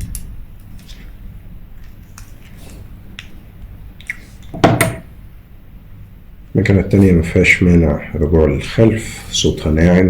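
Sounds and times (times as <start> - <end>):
loud knock: 4.6 - 5.1.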